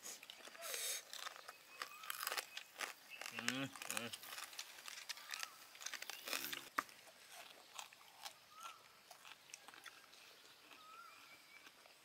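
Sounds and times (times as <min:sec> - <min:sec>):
crunching and chewing: 0:00.0 - 0:12.0.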